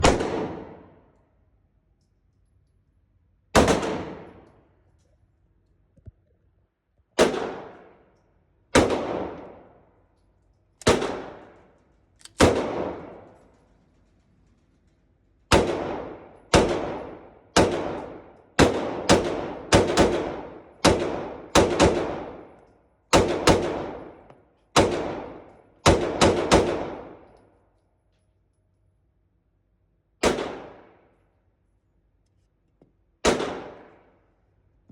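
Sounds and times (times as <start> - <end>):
pistol shots with echo: 0.0 - 1.0, 3.5 - 4.6, 7.2 - 8.0, 8.7 - 9.8, 10.8 - 11.8, 12.4 - 13.4, 15.5 - 27.4, 30.2 - 31.2, 33.2 - 34.3.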